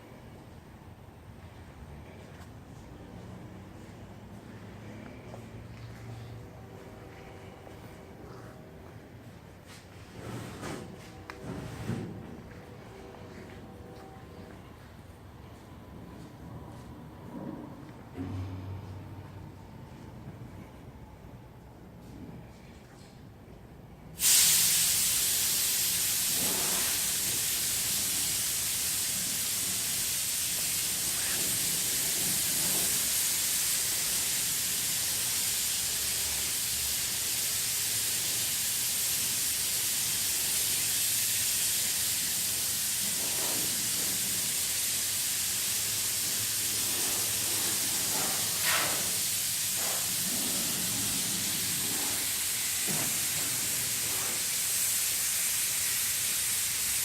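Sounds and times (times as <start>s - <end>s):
loud high hiss: 24.2s - 57.0s.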